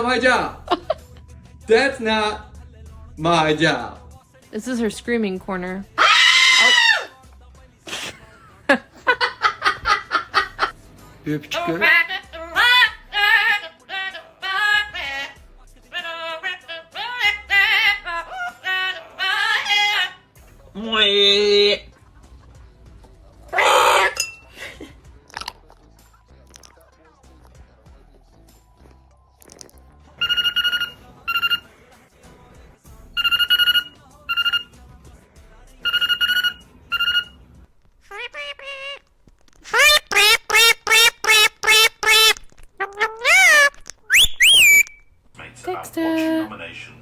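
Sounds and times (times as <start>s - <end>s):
high-pitched voice singing: 41.6s - 44.8s.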